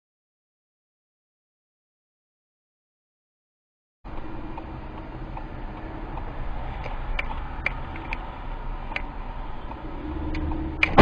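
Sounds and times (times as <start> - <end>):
road and engine noise: 4.1 - 11.0
sharp ticks: 4.1 - 11.0.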